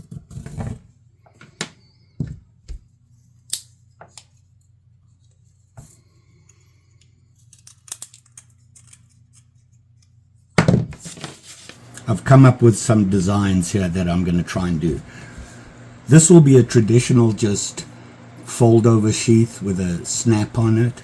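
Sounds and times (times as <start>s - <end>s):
small items clicking on workbench: 7.4s - 9.4s
faint low hum: 11.3s - 21.0s.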